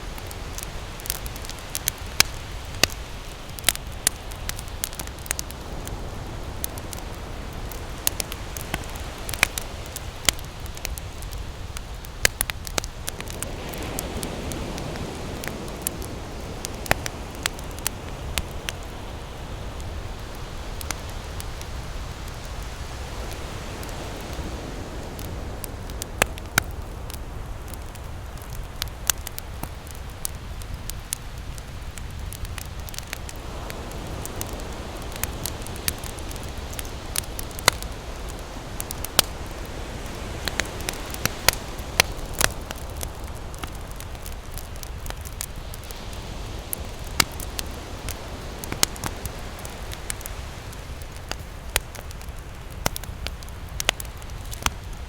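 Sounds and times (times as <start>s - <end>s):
campfire crackling and popping: 0.0s - 55.0s
ocean waves washing in: 0.0s - 55.0s.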